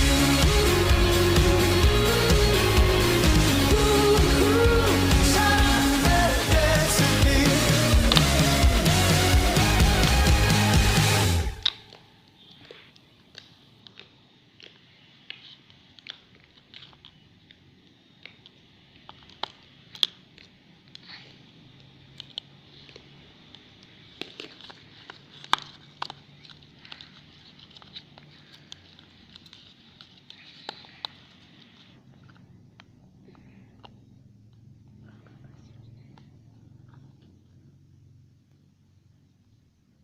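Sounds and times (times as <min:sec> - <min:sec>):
hands handling objects clicking: 0:11.6 - 0:34.6.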